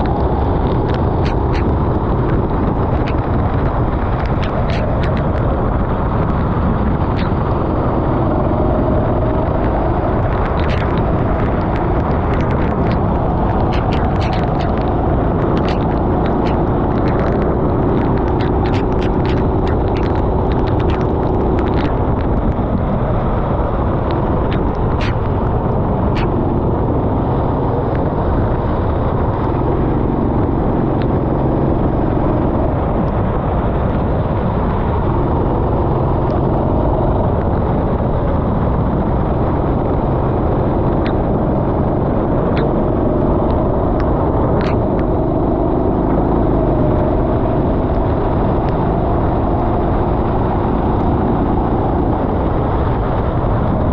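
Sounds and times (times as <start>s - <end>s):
sharp clicks: 0.0s - 30.2s, 42.4s - 45.4s
wind and track noise: 0.0s - 53.9s.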